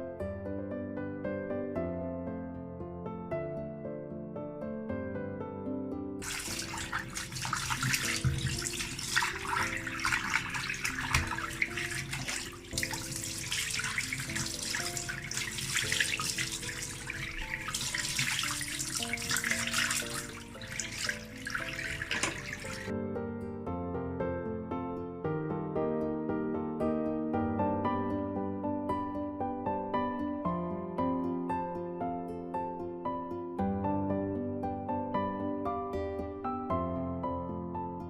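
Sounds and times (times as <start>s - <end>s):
soft instrumental music: 0.0s - 38.0s
tap water running into sink: 6.2s - 22.9s.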